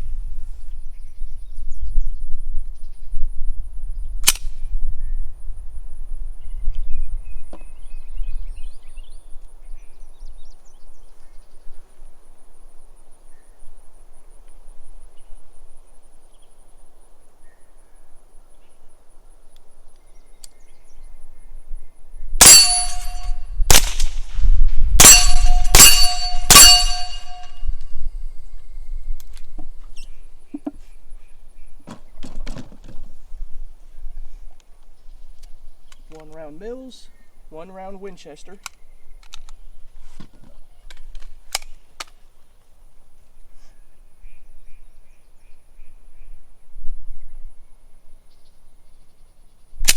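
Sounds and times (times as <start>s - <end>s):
brief metallic ring: 22.4s - 23.6s, 25.0s - 27.9s
suppressed gunshots: 22.4s - 24.4s.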